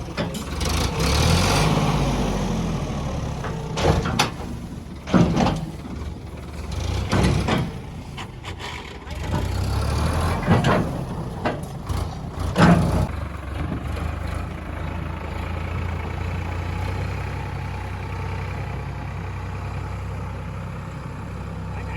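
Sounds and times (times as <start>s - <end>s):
heavy diesel engine running: 0.0s - 21.9s
sharp knocks and clatters: 3.4s - 6.1s, 6.9s - 7.9s, 10.4s - 13.8s.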